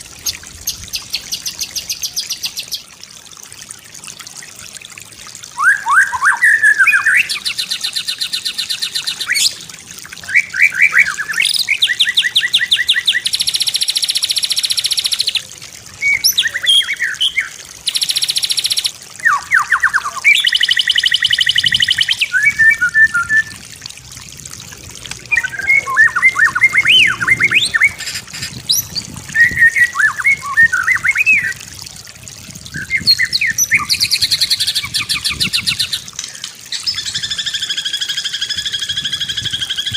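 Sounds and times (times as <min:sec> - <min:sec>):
bird singing varied song: 0:16.0 - 0:23.6, 0:25.3 - 0:31.6, 0:32.8 - 0:39.9.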